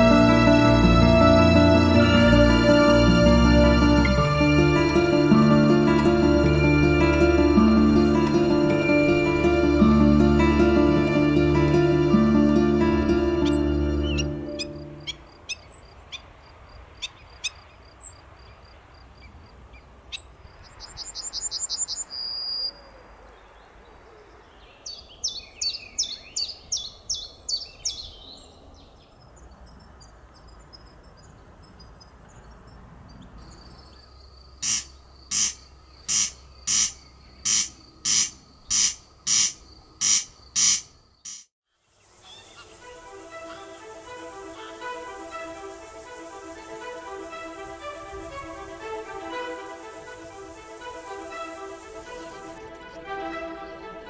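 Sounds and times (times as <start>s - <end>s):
wild birds calling: 3.6s - 18.2s, 33.4s - 41.4s, 42.2s - 54.0s
high bird trill: 13.0s - 16.4s, 33.4s - 41.4s.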